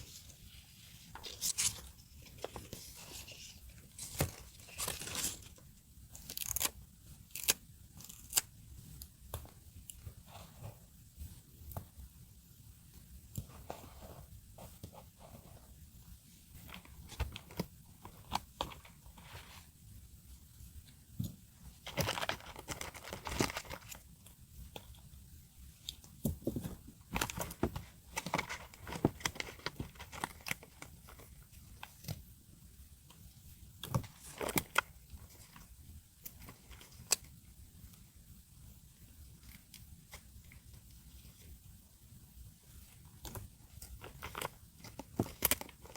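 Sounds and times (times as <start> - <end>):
paper crinkling: 0.0 - 8.5, 21.8 - 24.0, 26.5 - 32.2, 43.3 - 45.9
tape being peeled and torn: 6.1 - 8.6.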